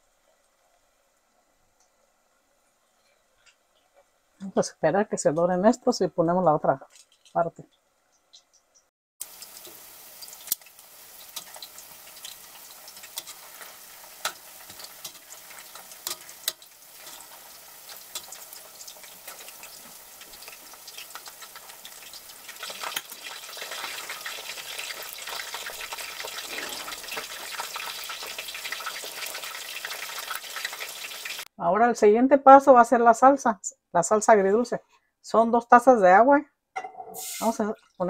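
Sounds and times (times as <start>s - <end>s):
chicken deep-frying in oil: 0.0s - 4.4s, 6.4s - 31.5s.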